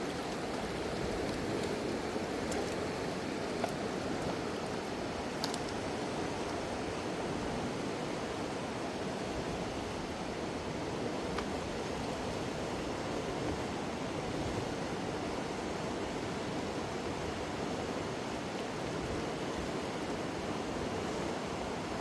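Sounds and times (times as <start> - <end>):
faint clicks: 0.1 - 5.8.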